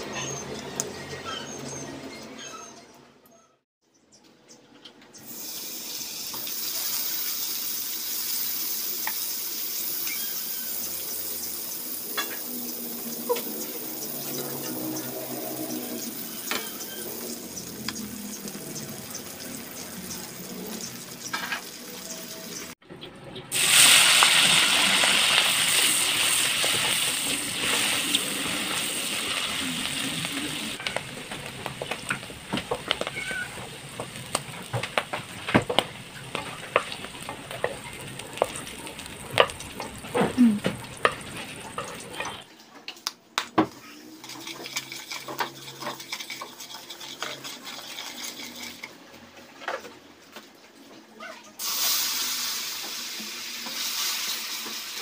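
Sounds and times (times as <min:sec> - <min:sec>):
mushrooms sizzling in hot oil: 0:05.2 - 0:22.8, 0:23.5 - 0:42.4, 0:51.6 - 0:55.0
water poured into hot pan: 0:23.5 - 0:30.8, 0:44.2 - 0:49.0, 0:51.6 - 0:55.0
wooden spatula scraping a wok: 0:30.7 - 0:42.4.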